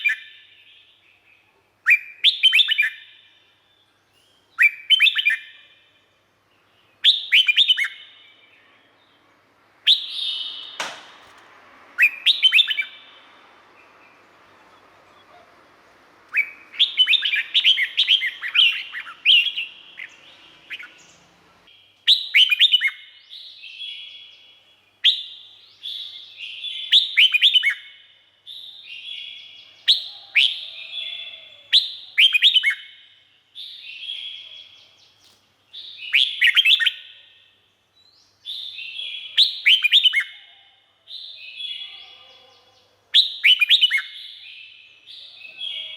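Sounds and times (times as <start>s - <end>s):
bird singing warbled phrases: 0.0s - 45.9s
sharp click: 10.6s - 11.5s.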